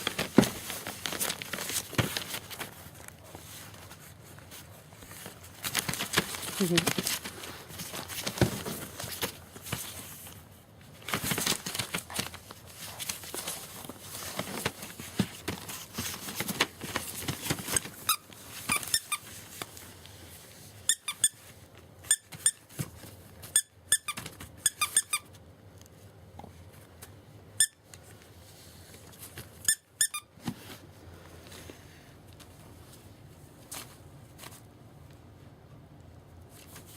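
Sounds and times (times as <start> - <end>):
puppies rustling and scuffling: 0.0 - 23.6.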